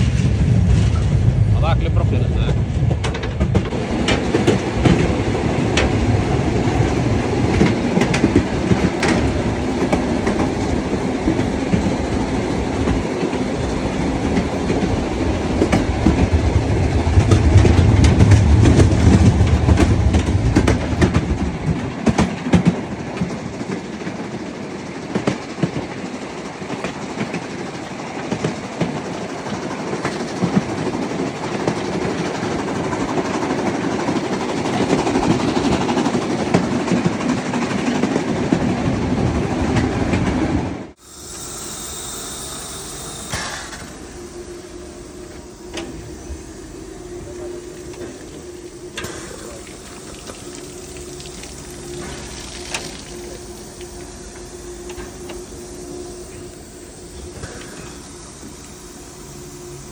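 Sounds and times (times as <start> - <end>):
wheels clacking over rails: 0.0 - 41.0
train rumbling: 0.0 - 59.9.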